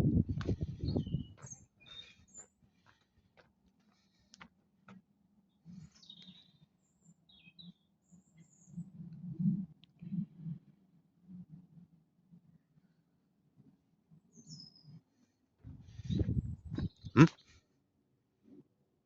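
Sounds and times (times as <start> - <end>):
small birds chirping: 0.3 - 3.2, 5.5 - 8.8, 14.4 - 15.0, 15.7 - 17.6.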